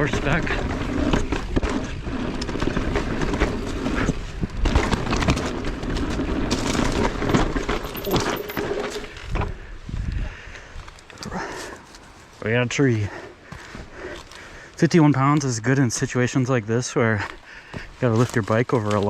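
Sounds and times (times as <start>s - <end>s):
tyre rumble: 0.0s - 9.4s
wind buffeting microphone: 9.0s - 11.5s.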